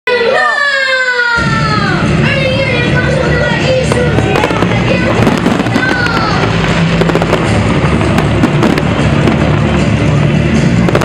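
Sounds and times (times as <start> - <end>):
music playing: 0.1 - 11.0
fireworks crackling and popping: 2.0 - 11.0.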